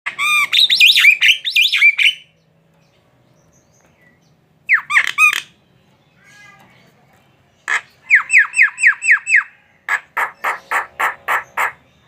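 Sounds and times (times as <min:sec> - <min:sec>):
bird whistled calls: 0:00.2 - 0:02.3.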